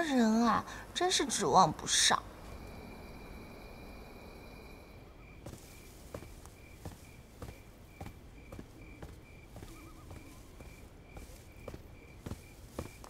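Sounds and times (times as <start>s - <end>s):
crickets chirping: 0.0s - 13.0s
footsteps walking: 5.4s - 13.0s.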